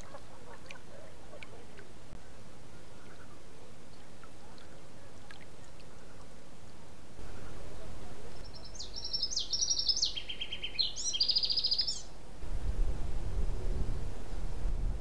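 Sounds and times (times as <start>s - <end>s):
songbird singing trills: 7.2s - 12.2s
low steady rumble: 12.2s - 15.0s.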